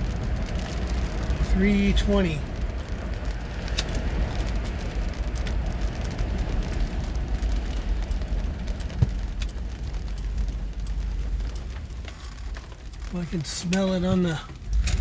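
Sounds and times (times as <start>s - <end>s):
raindrops ticking on windshield: 0.0s - 15.0s
road rumble inside moving car: 0.0s - 15.0s.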